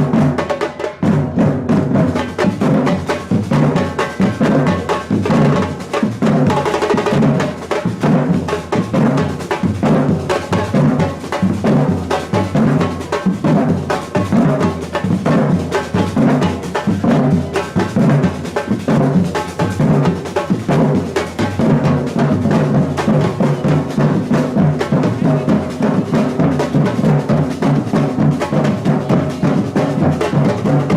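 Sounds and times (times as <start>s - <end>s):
fast snare and percussion: 0.0s - 30.9s.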